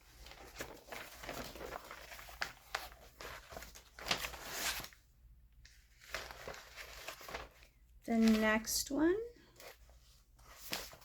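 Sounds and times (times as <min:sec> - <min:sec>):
magazine pages rustling: 0:00.0 - 0:11.0.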